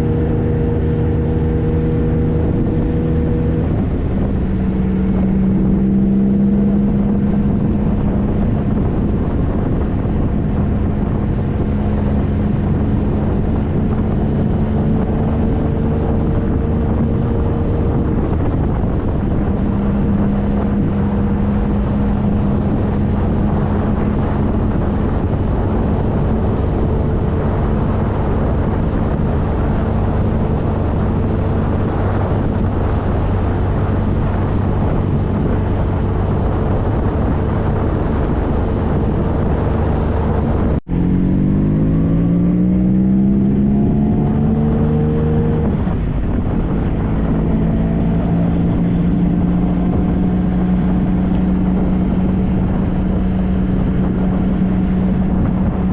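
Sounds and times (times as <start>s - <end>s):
motorcycle engine cruising: 0.0s - 55.9s
wind noise: 0.0s - 55.9s.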